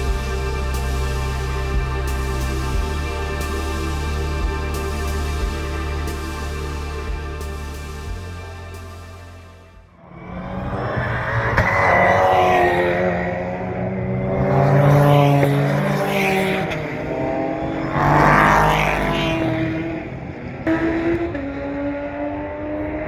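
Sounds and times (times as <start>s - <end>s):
racing car engines passing: 9.9s - 23.0s.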